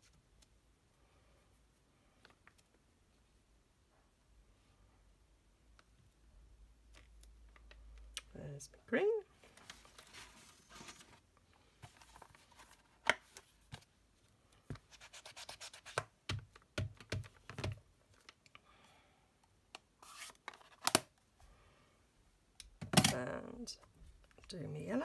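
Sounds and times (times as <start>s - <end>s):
cardstock rustling and scraping: 9.4s - 11.2s, 20.0s - 21.0s.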